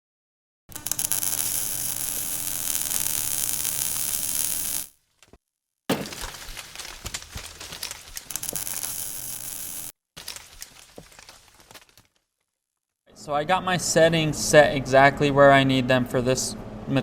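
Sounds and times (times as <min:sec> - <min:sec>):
welding arc popping: 0:00.7 - 0:05.0, 0:08.2 - 0:09.9
welding arc sizzling: 0:00.7 - 0:05.0, 0:08.3 - 0:09.9.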